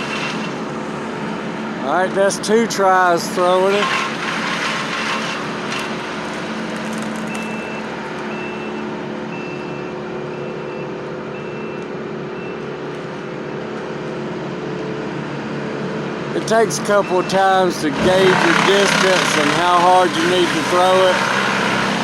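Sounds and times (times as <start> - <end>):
large vehicle engine running: 0.0 - 22.0
back-up alarm beeping: 7.3 - 12.7, 16.7 - 18.4.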